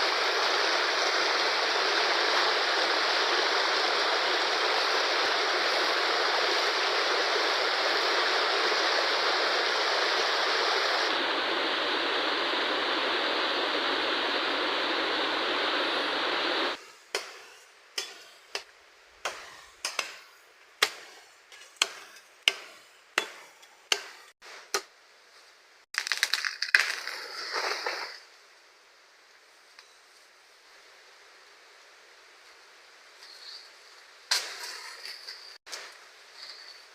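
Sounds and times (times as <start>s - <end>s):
river rushing: 0.0s - 16.8s.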